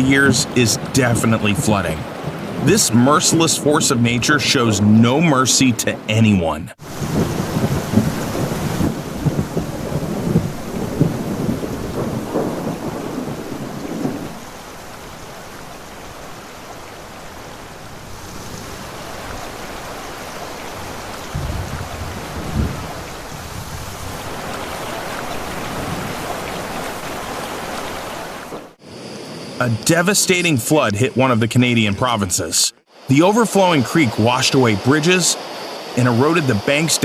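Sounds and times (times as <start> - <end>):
rain: 0.0 - 4.2, 6.8 - 31.8
low rumbling of thunder: 6.8 - 15.2, 20.6 - 24.5.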